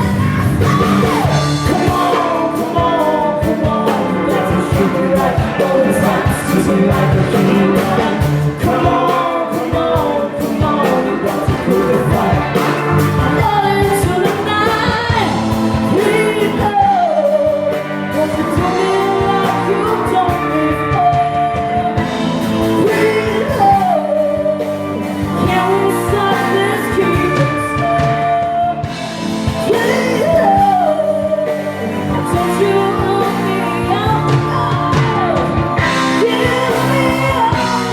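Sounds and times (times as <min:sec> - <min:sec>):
rock blues band playing: 0:00.0 - 0:37.9
singer holding sliding notes: 0:00.0 - 0:37.9.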